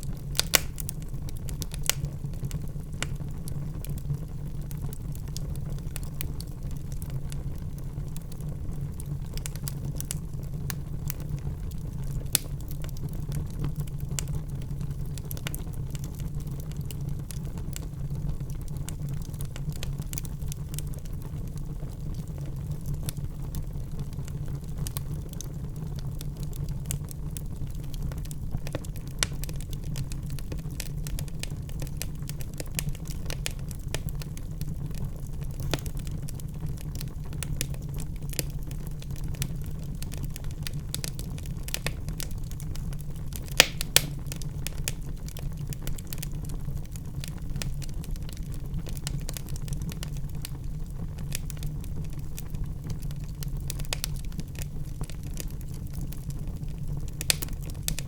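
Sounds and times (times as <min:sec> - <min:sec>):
logs crackling and popping: 0:00.0 - 0:58.0
low rumble of fire: 0:00.0 - 0:58.0.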